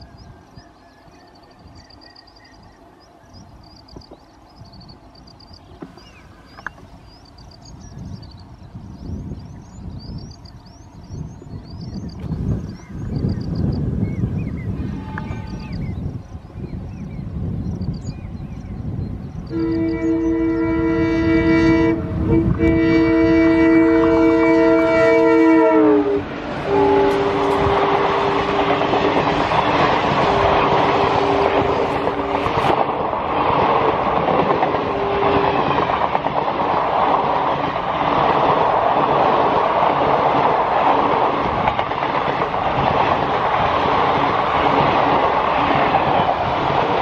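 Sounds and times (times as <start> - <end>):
coaches clattering on rails: 5.2 - 7.8, 26.5 - 47.0
locomotive air horns: 14.8 - 15.8, 19.5 - 28.9, 30.2 - 32.7, 34.9 - 35.6.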